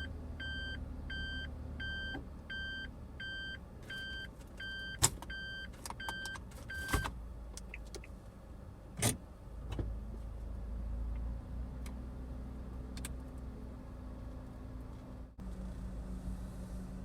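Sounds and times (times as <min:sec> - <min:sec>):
electronic warning beep: 0:00.0 - 0:07.1
engine running hum: 0:00.0 - 0:17.0.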